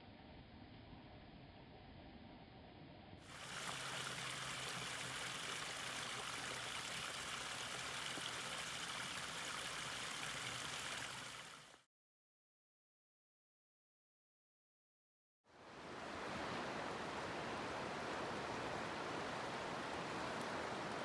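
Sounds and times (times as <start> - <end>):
flowing water rushing: 3.3 - 11.8, 15.6 - 21.0.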